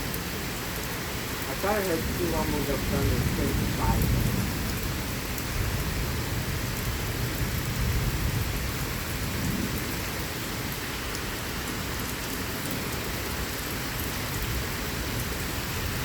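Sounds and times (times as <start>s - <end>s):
heavy rain falling: 0.0s - 16.0s
low rumble of thunder: 1.6s - 10.8s.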